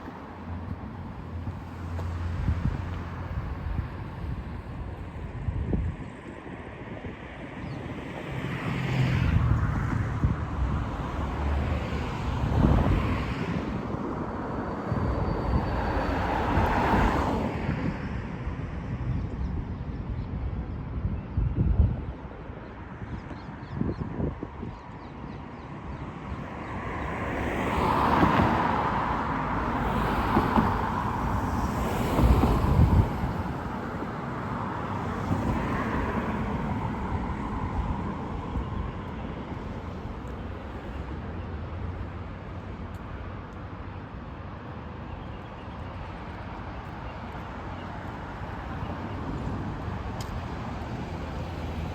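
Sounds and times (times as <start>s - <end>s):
vehicles passing: 0.0s - 6.2s, 7.9s - 21.0s, 25.2s - 51.9s
background traffic: 0.0s - 51.9s.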